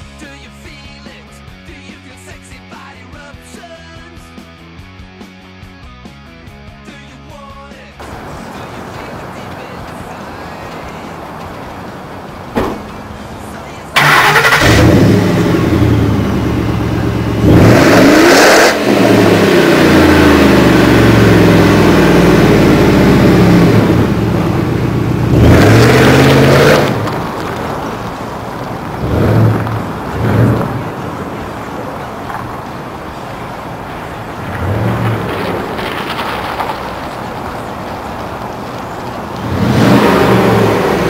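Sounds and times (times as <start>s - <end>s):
car engine idling: 8.0s - 41.0s
car engine revving: 8.0s - 41.0s.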